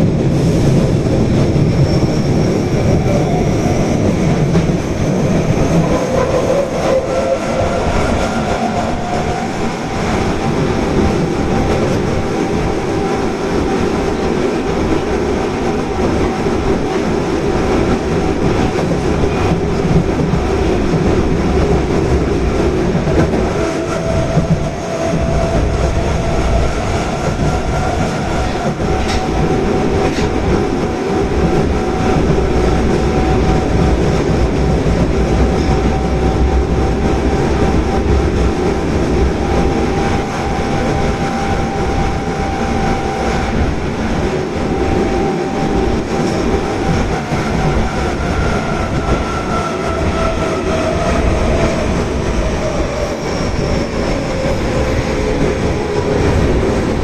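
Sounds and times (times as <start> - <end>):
subway train whine: 0.0 - 57.0
wheels rumbling on rail: 0.0 - 57.0.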